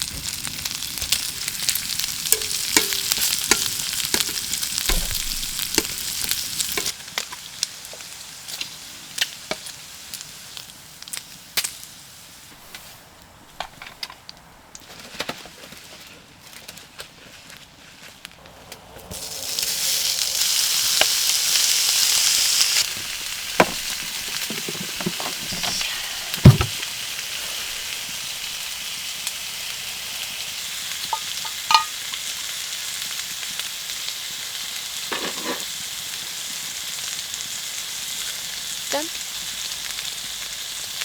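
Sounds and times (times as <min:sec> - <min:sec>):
meat sizzling in a pan: 0:00.0 - 0:12.8, 0:19.0 - 0:41.0
utensils knocking on a pan: 0:02.3 - 0:06.1, 0:23.6 - 0:25.7, 0:26.4 - 0:26.8, 0:31.1 - 0:32.0.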